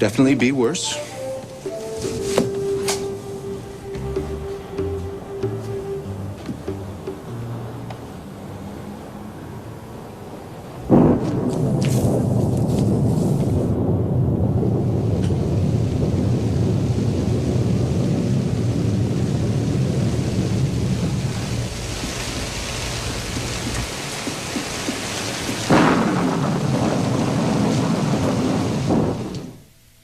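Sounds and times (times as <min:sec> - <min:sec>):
steady rain: 0:00.0 - 0:30.0
low rolling thunder: 0:01.6 - 0:29.7
sharp thunderclap: 0:10.8 - 0:29.7.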